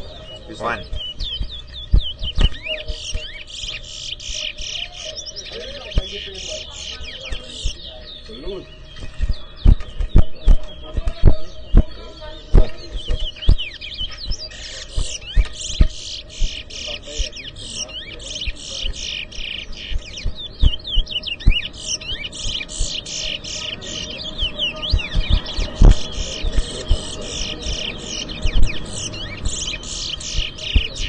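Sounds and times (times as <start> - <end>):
low thumps: 0.0 - 3.5, 8.9 - 17.6, 18.4 - 23.0, 24.3 - 31.0
finches twittering song: 0.0 - 31.0.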